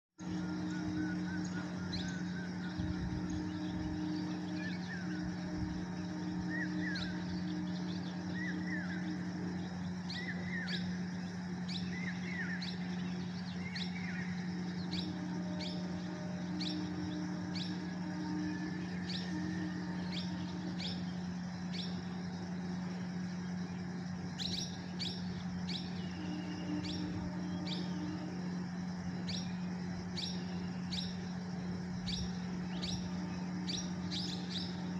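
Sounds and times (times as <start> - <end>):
small birds chirping: 0.2 - 34.9
steady low hum: 0.2 - 34.9
small bird chirping: 23.7 - 34.9.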